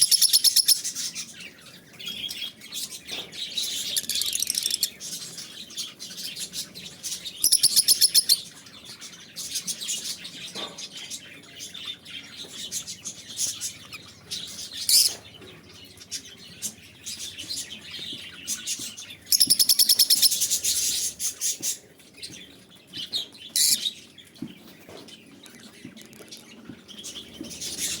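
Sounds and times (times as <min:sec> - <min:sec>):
shrill rapid bird chattering: 0:00.0 - 0:01.0, 0:03.6 - 0:05.0, 0:07.1 - 0:08.5, 0:13.1 - 0:15.3, 0:19.3 - 0:21.4
birds chirping: 0:00.0 - 0:28.0.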